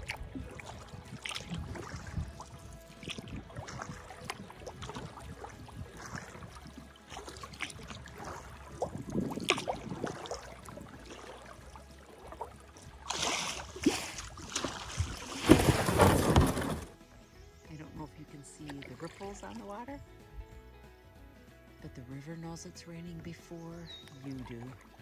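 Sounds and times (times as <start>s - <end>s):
water dripping off paddle: 0.0s - 15.8s
paddle splashing: 0.0s - 17.1s, 18.4s - 19.9s, 23.5s - 25.0s.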